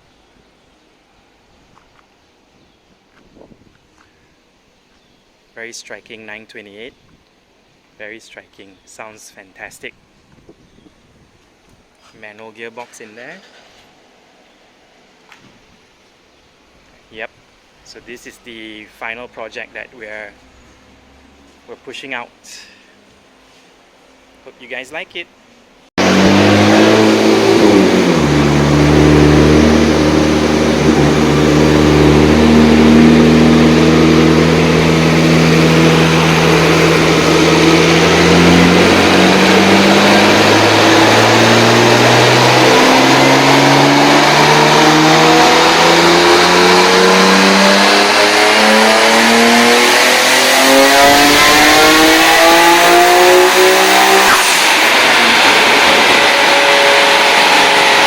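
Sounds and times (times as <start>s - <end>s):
car engine revving: 26.0s - 58.0s.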